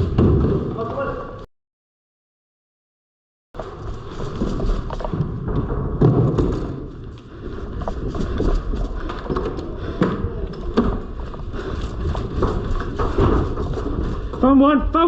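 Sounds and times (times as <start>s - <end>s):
footsteps: 3.6s - 15.0s.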